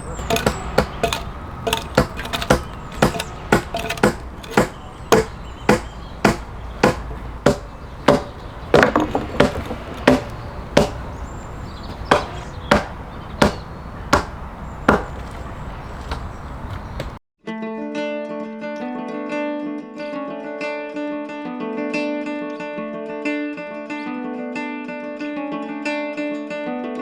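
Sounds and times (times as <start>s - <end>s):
axe chopping log: 0.0s - 17.2s.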